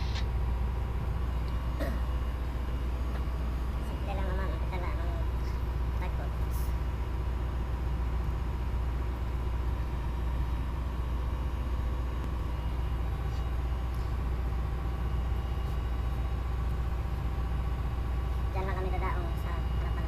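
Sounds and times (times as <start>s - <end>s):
diesel engine drone: 0.0s - 20.0s.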